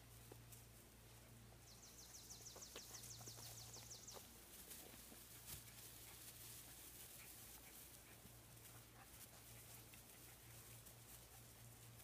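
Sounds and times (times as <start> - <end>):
songbird trill: 1.2 - 4.6.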